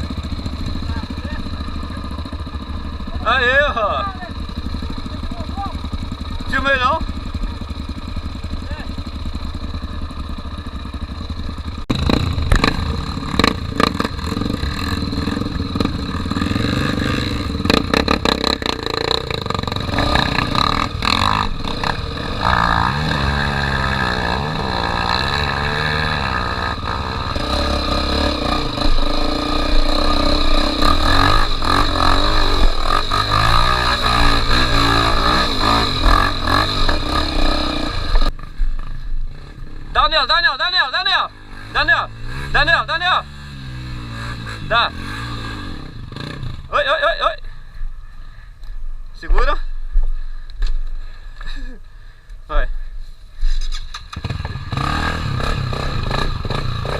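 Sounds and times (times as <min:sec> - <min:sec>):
motorcycle engine revving: 0:00.0 - 0:47.6, 0:53.4 - 0:56.9.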